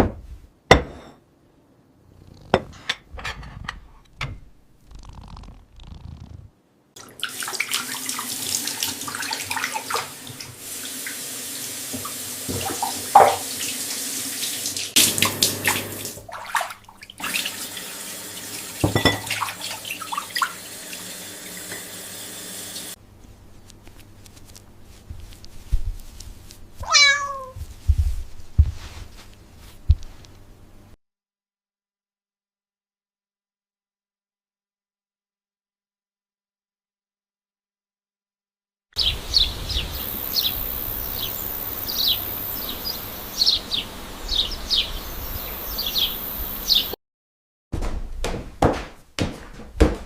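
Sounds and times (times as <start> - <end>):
tap water running into sink: 7.0 - 23.0
cat meowing: 26.8 - 27.6.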